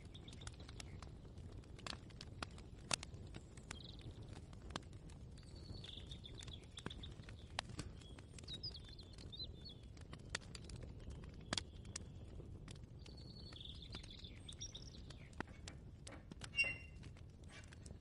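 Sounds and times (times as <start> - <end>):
faint bird chirping: 5.4 - 9.9, 13.0 - 15.7, 16.5 - 17.0.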